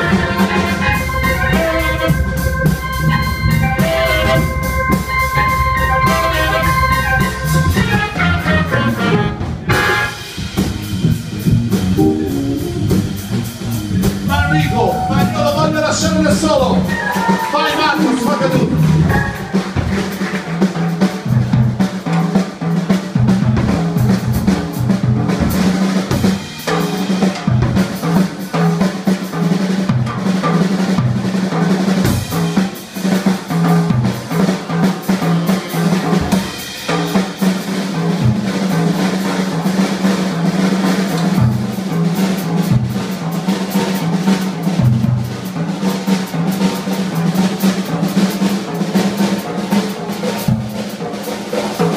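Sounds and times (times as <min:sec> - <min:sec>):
bass guitar vamp: 0:00.0 - 0:17.4, 0:18.0 - 0:19.4
drum kit solo: 0:00.0 - 0:51.9.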